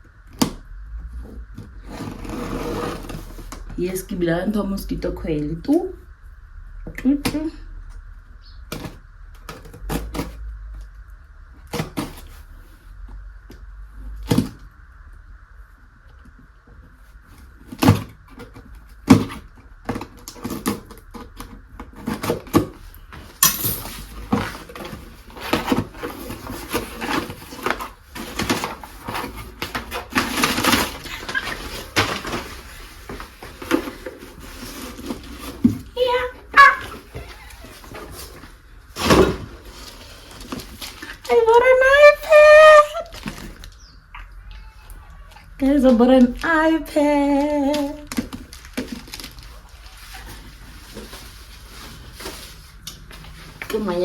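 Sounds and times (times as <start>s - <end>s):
packaging rustling and crackling: 17.9s - 41.3s, 43.0s - 43.9s, 47.4s - 53.9s.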